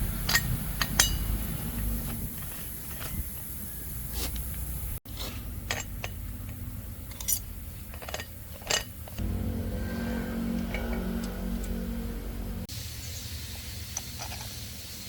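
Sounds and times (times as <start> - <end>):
metal tools clinking: 0.2 - 3.6, 5.6 - 9.2
low steady hum: 4.6 - 12.7
droning machine: 9.1 - 13.0.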